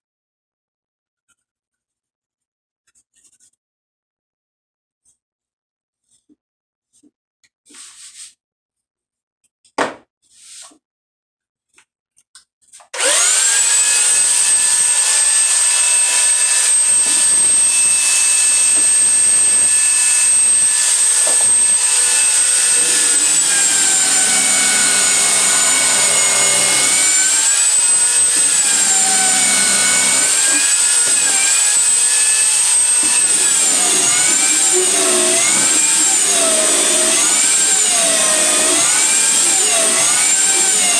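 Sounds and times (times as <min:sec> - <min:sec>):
electric sander whining: 0:13.0 - 0:40.9.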